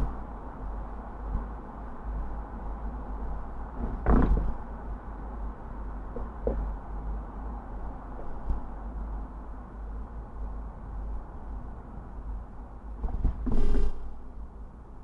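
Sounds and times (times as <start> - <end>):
car driving rumble: 0.0 - 15.0
loud thump: 3.8 - 4.6
light knocks: 6.1 - 6.7.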